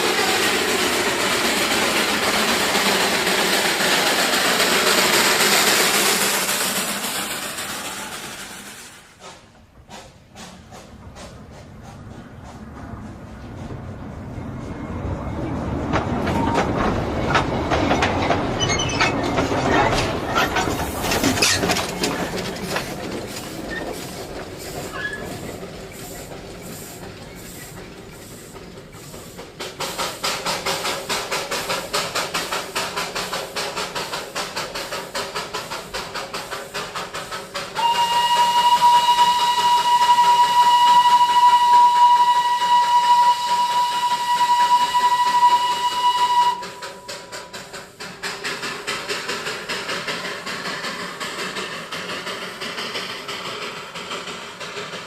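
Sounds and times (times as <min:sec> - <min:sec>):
train running and clattering: 0:00.0 - 0:55.0
locomotive whistle: 0:37.8 - 0:47.5.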